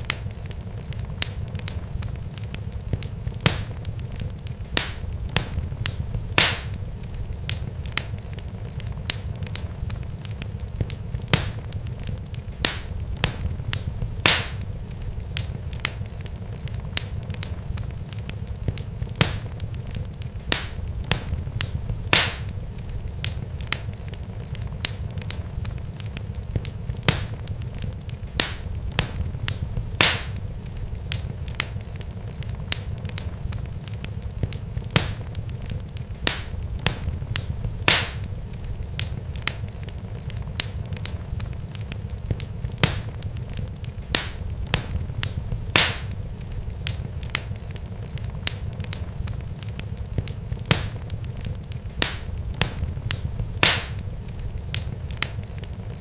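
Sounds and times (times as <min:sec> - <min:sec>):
fire crackling: 0:00.0 - 0:56.0
sharp pops: 0:04.8 - 0:06.8, 0:14.2 - 0:14.6, 0:22.1 - 0:22.5, 0:30.0 - 0:30.4, 0:36.2 - 0:38.2, 0:44.1 - 0:46.2, 0:52.0 - 0:54.0.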